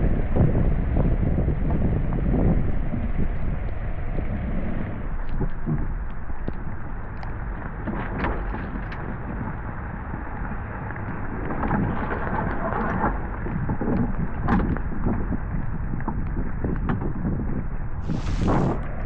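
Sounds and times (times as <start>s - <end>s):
wind buffeting microphone: 0.0s - 19.0s
water rushing along hull: 2.8s - 15.5s, 18.0s - 19.0s.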